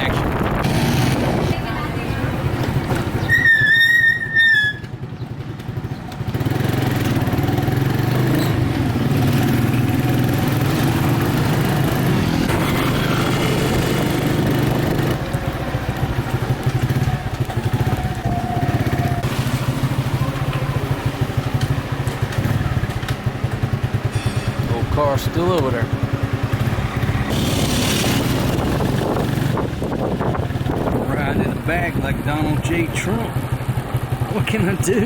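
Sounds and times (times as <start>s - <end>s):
motorcycle engine running: 0.0s - 35.0s
high wavering squeal: 3.2s - 4.9s.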